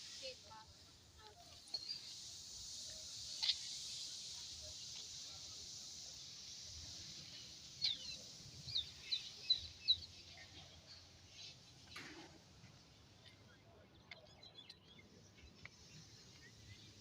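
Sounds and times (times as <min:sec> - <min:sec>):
steady high-pitched hiss: 0:00.0 - 0:17.0
small birds chirping: 0:07.2 - 0:12.0, 0:13.2 - 0:17.0.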